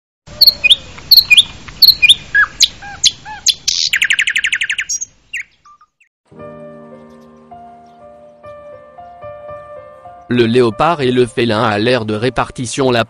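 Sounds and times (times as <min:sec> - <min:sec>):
songbird chirping and trilling: 0:00.3 - 0:06.1, 0:06.7 - 0:13.0
soft sustained music chords: 0:06.3 - 0:12.9.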